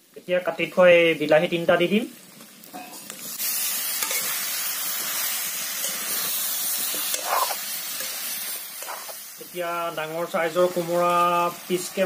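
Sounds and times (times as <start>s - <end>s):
pork sizzling in a pan: 0.0s - 12.0s
spatula scraping a pan: 2.8s - 4.4s, 5.0s - 9.3s.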